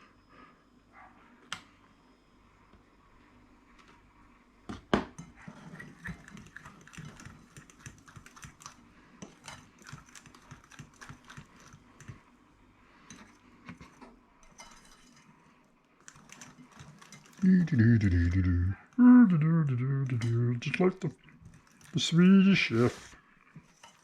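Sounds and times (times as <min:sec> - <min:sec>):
utensil beating mixture in a bowl: 0:05.2 - 0:19.4, 0:20.0 - 0:24.0.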